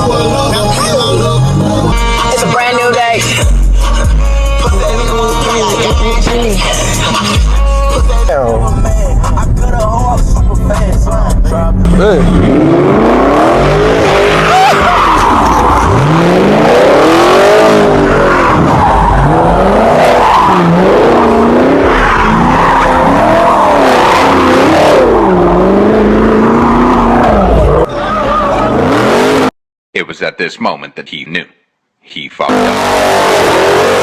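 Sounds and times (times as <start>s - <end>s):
car engines revving hard: 10.8s - 29.5s, 32.5s - 34.0s
tyres squealing and skidding: 12.0s - 29.5s.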